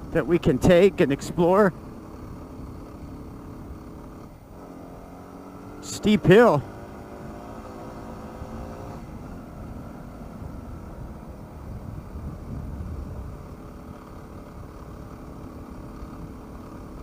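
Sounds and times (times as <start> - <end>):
motorcycle engine running: 0.0 - 17.0
wind noise: 9.0 - 15.1.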